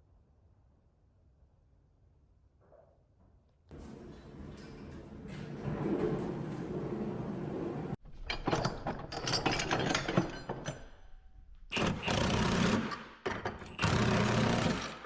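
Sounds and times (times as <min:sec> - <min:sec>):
power tool running: 0:13.8 - 0:15.0.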